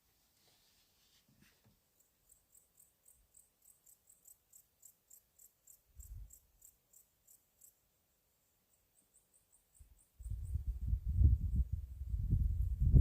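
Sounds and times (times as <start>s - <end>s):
cricket chirping: 1.9s - 12.0s.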